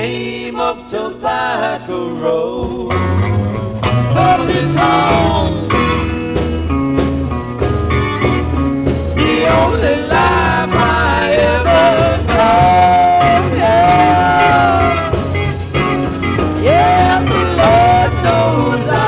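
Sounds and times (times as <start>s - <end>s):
psychedelic rock band playing: 2.2s - 19.0s.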